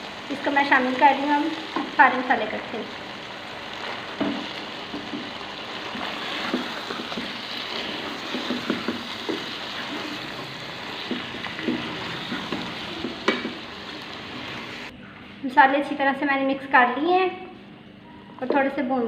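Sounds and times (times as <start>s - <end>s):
food sizzling in hot oil: 0.0s - 14.9s.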